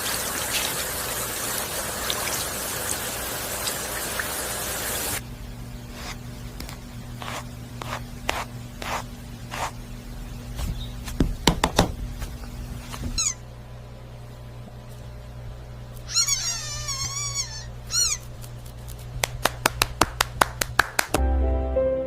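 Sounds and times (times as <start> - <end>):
cat meowing: 16.1 - 18.2.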